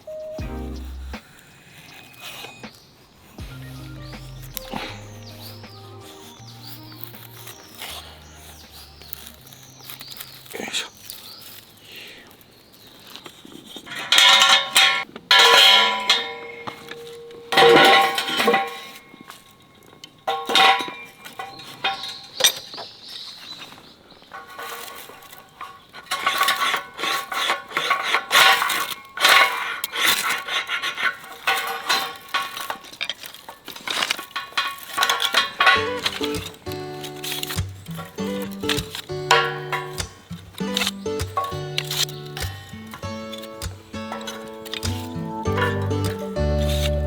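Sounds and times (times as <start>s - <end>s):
metal cookware clinking and scraping: 13.9s - 22.7s, 24.3s - 47.0s.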